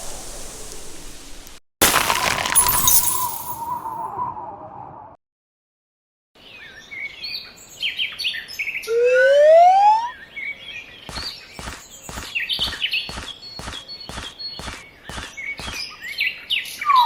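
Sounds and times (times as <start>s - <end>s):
rising whistle-like glide: 3.5s - 5.2s, 8.9s - 10.2s
birds chirping: 8.6s - 17.0s
footstep-like thumps: 11.1s - 15.9s.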